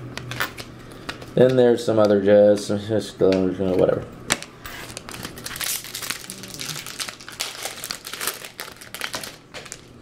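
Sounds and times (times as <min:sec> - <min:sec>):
wrapper crinkling: 0:04.8 - 0:10.0.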